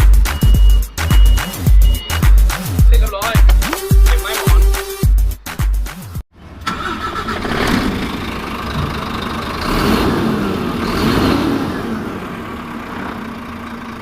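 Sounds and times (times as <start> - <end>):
truck diesel engine accelerating: 6.3 - 14.0.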